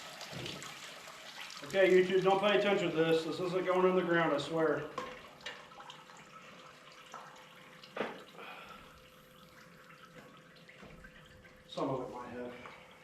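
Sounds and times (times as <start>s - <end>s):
liquid trickling and dripping: 0.0s - 13.0s.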